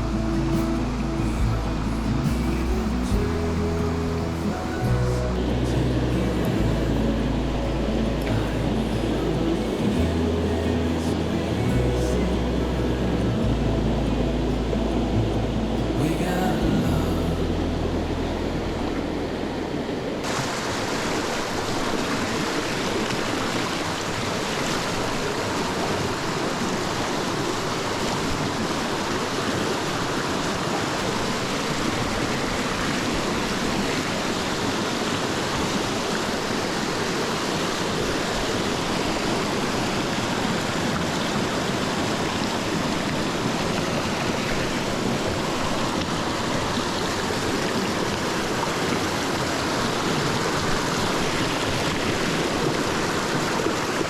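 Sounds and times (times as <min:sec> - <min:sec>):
low rumble: 0:00.0 - 0:20.3
stream water rushing: 0:00.0 - 0:54.0.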